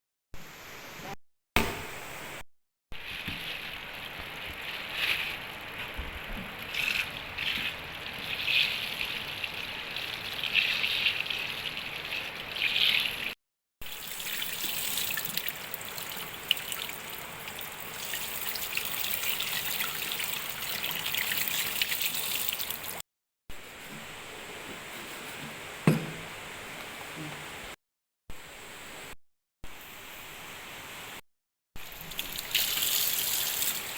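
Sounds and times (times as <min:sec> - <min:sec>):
water trickling and splashing: 0:03.0 - 0:23.0, 0:31.8 - 0:33.9.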